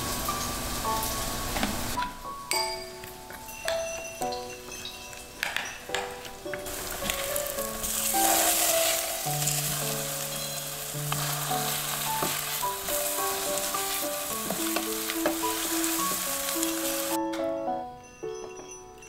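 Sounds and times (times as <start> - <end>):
spatula tapping a pan: 2.0 - 17.1
tofu sizzling in hot oil: 6.6 - 17.2.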